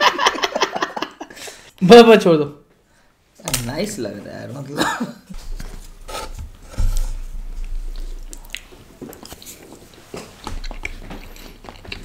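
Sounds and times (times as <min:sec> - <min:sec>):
mouth chewing soft food: 0:07.6 - 0:12.0.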